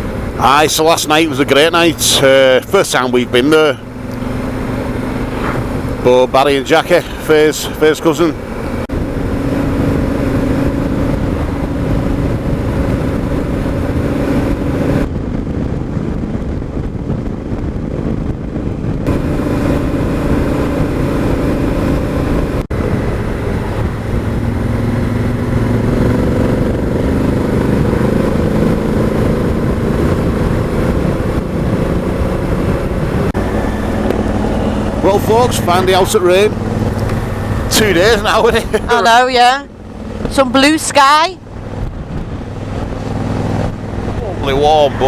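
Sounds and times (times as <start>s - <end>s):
motorcycle engine running: 0.0s - 45.0s
wind rush: 0.0s - 45.0s.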